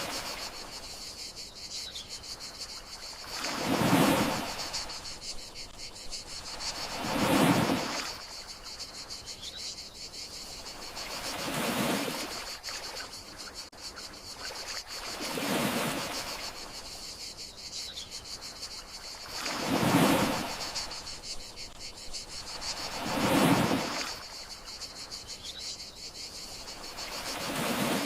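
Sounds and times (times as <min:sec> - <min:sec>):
sea waves washing in: 0:00.0 - 0:00.8, 0:03.0 - 0:05.2, 0:06.4 - 0:08.7, 0:10.7 - 0:13.0, 0:14.4 - 0:16.7, 0:19.2 - 0:21.8, 0:22.4 - 0:24.7, 0:26.7 - 0:28.0
crickets chirring: 0:00.0 - 0:28.0.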